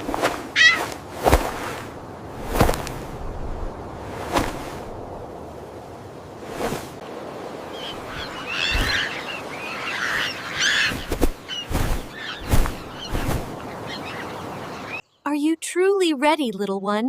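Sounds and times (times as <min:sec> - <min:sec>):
noisy outdoor background: 0:00.0 - 0:17.0
bird chirps and calls: 0:00.6 - 0:00.9, 0:07.7 - 0:15.5.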